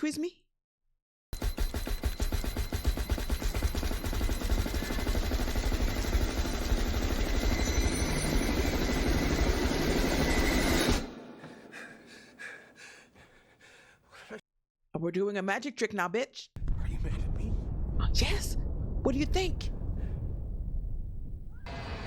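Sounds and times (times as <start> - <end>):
dense rumbling roar with pulse: 16.6 - 22.0.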